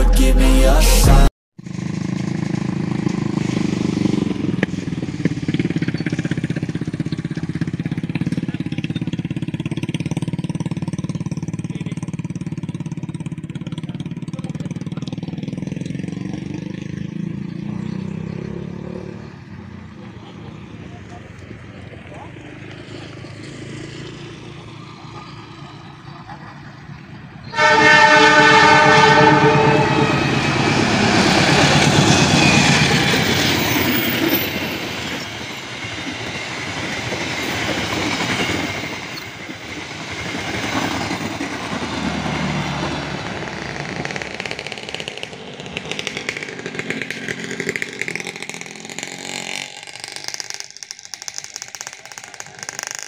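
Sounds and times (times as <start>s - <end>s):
train wheels rumbling and clattering: 1.7s - 16.9s, 26.2s - 53.0s
train horn blast: 27.5s - 31.0s.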